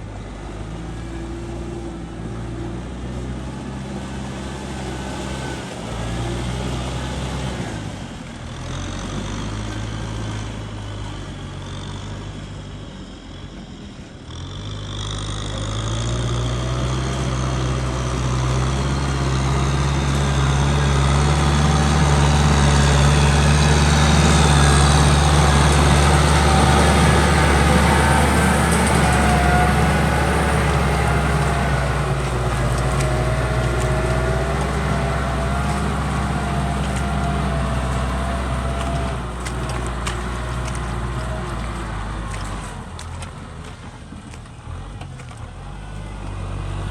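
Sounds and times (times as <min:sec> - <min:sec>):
tractor diesel engine: 0:00.0 - 0:46.9.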